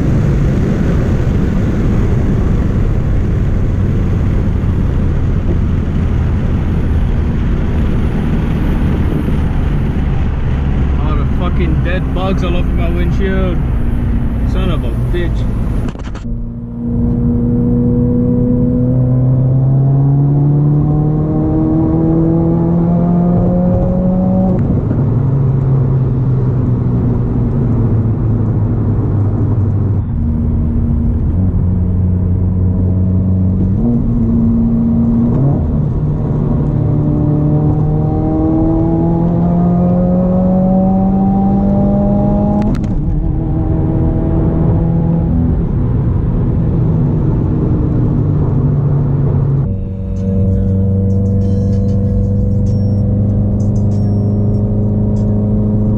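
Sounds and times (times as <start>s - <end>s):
car engine accelerating: 0.0s - 55.9s.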